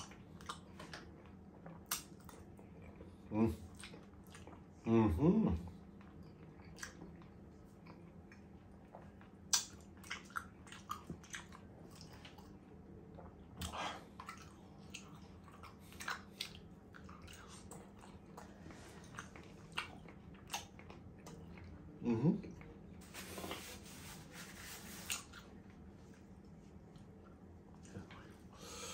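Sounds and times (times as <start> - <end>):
close chewing with mouth clicks: 0.0 - 4.8, 5.7 - 22.8.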